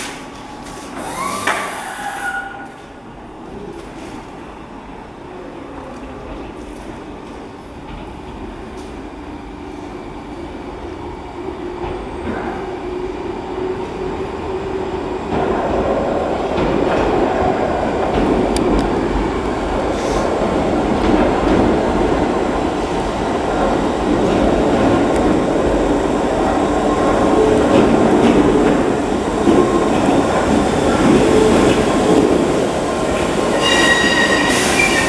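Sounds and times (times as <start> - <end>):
train rumble and wheel noise: 0.0 - 35.0
high wheel squeals: 33.6 - 35.0.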